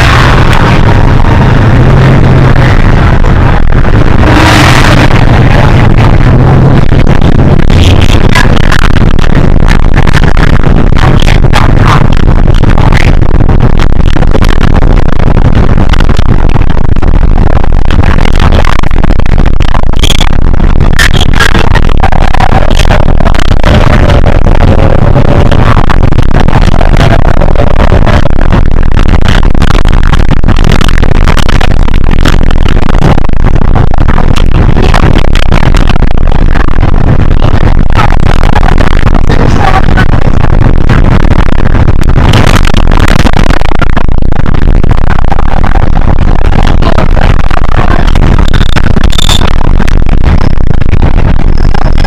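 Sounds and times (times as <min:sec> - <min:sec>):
bus engine droning: 0:00.0 - 0:09.2
faint held whine: 0:00.0 - 0:52.0
road rumble: 0:00.0 - 0:52.0.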